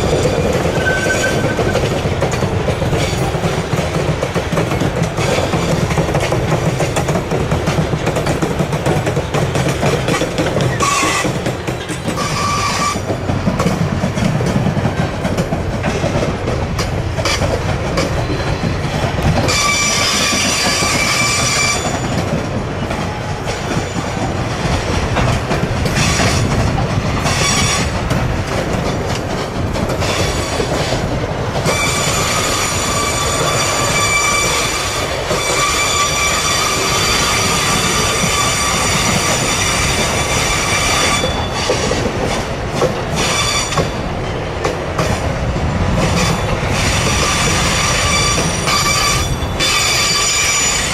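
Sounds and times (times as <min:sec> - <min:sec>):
high wheel squeal: 0:00.0 - 0:01.8, 0:10.6 - 0:13.1, 0:18.0 - 0:22.2, 0:31.6 - 0:42.0, 0:43.2 - 0:44.0, 0:46.1 - 0:50.9
freight train rumbling past: 0:00.0 - 0:50.9
wheels clicking over rail joints: 0:00.0 - 0:50.9.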